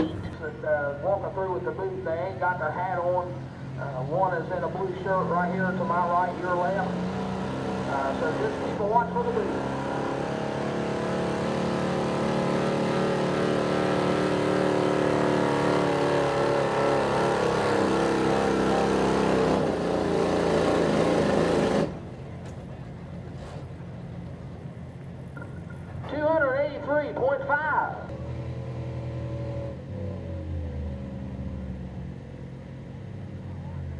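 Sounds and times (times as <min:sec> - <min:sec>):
truck engine revving under load: 0:03.4 - 0:24.2, 0:28.1 - 0:33.9.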